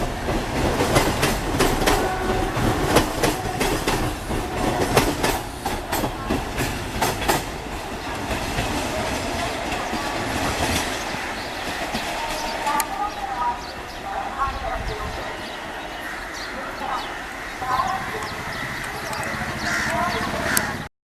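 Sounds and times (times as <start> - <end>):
train wheels clicking on rail joints: 0.0 - 14.0
train rumble: 0.0 - 20.9.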